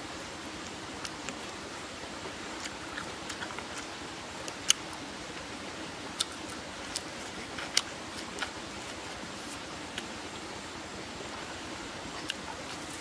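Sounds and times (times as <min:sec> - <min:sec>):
background hiss: 0:00.0 - 0:13.0
chewing with crunches: 0:00.6 - 0:01.6, 0:02.4 - 0:05.5, 0:06.1 - 0:10.2, 0:12.1 - 0:13.0.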